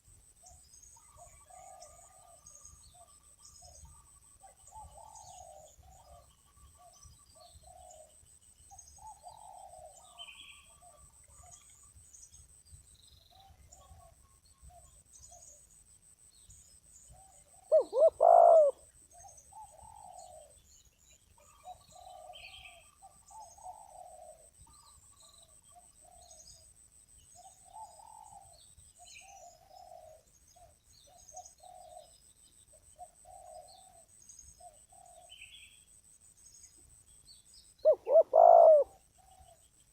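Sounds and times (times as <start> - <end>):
doves cooing: 17.5 - 18.8, 19.5 - 20.6, 21.4 - 24.5, 37.8 - 39.6.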